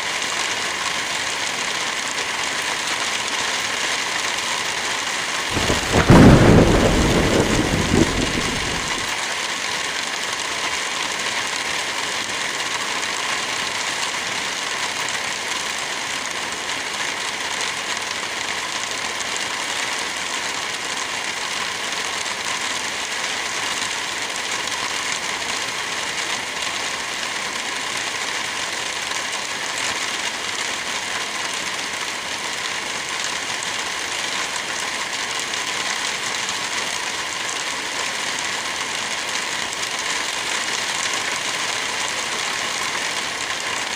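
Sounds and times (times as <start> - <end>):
steady rain: 0.0 - 43.9
thunder clap rumbling: 5.5 - 9.1.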